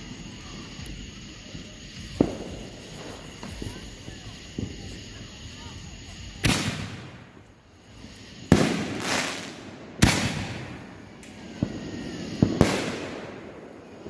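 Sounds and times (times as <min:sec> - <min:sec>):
light firework pops: 0:00.0 - 0:14.0
firework booms with echo: 0:01.9 - 0:07.4, 0:08.4 - 0:14.0.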